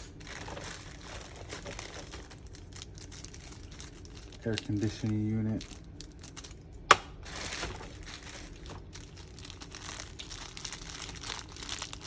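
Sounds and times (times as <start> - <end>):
plastic packaging crinkling: 0.0 - 12.0
sharp plastic snap: 6.9 - 7.1.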